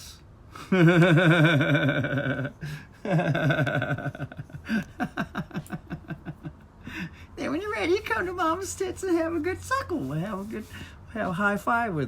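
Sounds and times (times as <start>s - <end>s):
man laughing mockingly: 0.6s - 7.0s.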